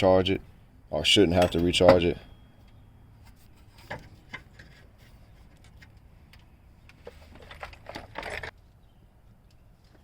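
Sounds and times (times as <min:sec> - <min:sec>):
metal tools clinking: 0:01.4 - 0:02.8.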